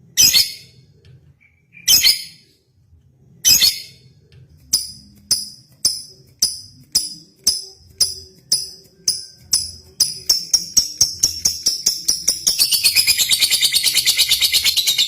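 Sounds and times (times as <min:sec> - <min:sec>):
lovebird chirping: 0:01.4 - 0:02.5, 0:03.4 - 0:04.0, 0:08.6 - 0:15.0.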